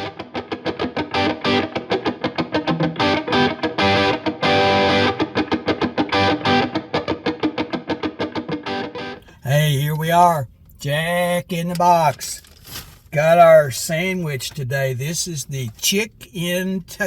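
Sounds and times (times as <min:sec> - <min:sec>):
distorted electric guitar music: 0:00.0 - 0:09.3.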